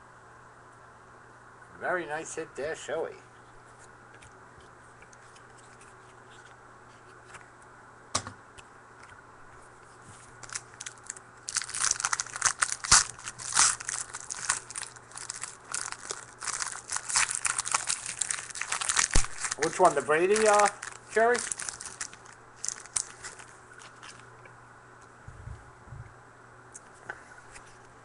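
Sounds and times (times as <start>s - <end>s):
card pack wrapper crinkling: 10.4s - 24.3s.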